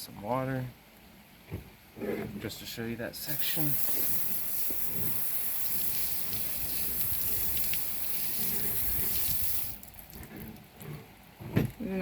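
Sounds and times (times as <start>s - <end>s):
water running onto steel pipe: 3.2s - 10.5s.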